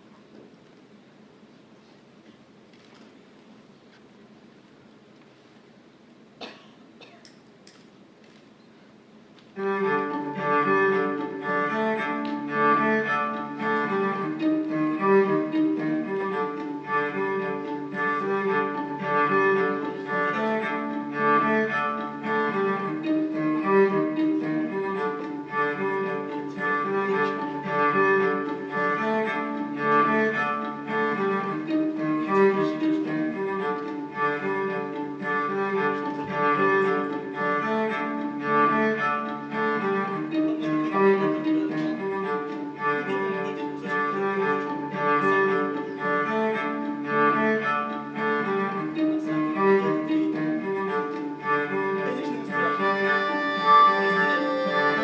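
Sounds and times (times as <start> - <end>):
bowed strings led by cello: 9.4 - 55.0.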